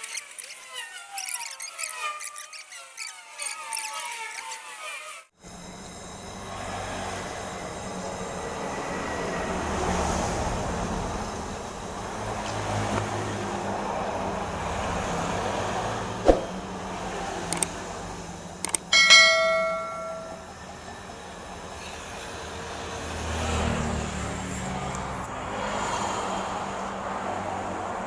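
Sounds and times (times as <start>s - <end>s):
small click: 17.5s - 17.7s, 18.6s - 18.9s
sharp metallic clank: 18.7s - 20.5s.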